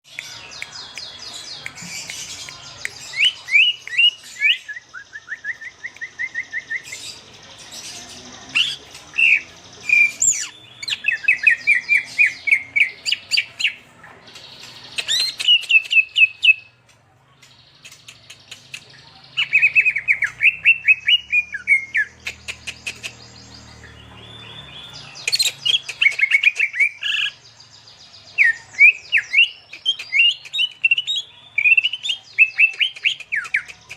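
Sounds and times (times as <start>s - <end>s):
songbirds chirping and trilling: 0.0s - 33.9s.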